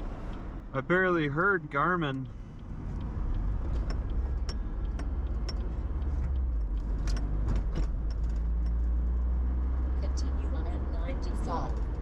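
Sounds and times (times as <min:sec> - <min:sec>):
engine and tyre rumble: 0:00.0 - 0:12.0
interior clicks and rattles: 0:00.1 - 0:09.3.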